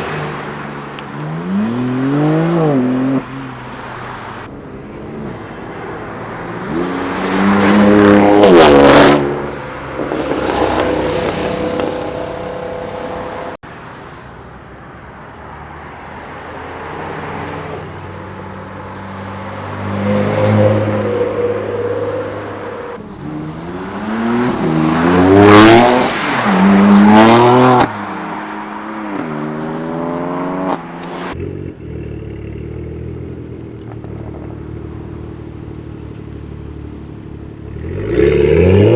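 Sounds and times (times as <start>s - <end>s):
cars accelerating past: 5.3s - 13.6s, 16.6s - 36.0s, 37.6s - 38.9s.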